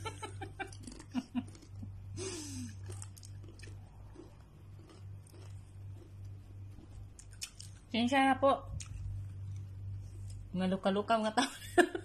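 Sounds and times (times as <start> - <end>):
low hum: 0.0 - 12.0
chips crunching: 0.4 - 7.9.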